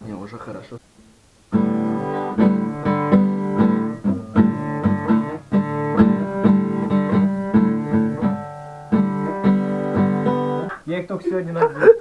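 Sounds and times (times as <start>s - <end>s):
acoustic guitar strumming: 1.5s - 10.8s.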